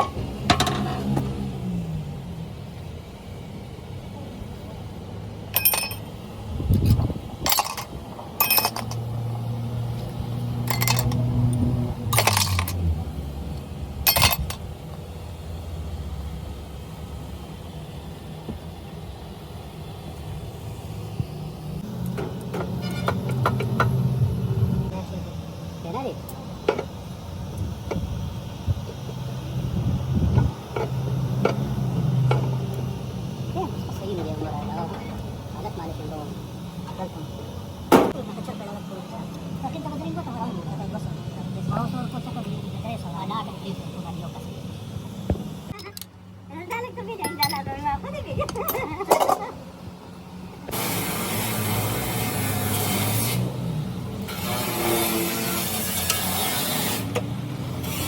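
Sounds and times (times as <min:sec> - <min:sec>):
low machine hum: 0:00.0 - 0:56.6
metal tools clinking: 0:05.5 - 0:06.1, 0:07.5 - 0:09.1, 0:10.6 - 0:11.3, 0:12.1 - 0:12.8, 0:14.1 - 0:14.6, 0:46.7 - 0:47.7.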